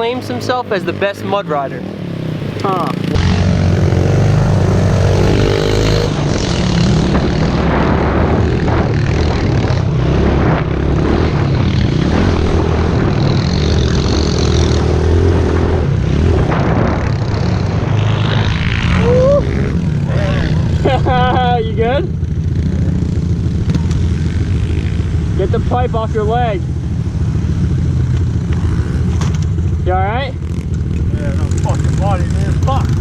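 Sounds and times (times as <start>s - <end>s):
motorbike engine revving: 0.0s - 33.0s.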